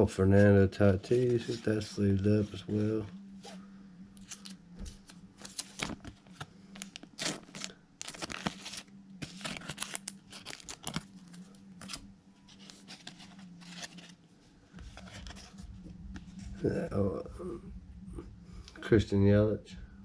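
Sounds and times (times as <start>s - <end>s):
faint low hum: 0.0s - 20.0s
cards sliding into plastic sleeves: 4.2s - 14.2s.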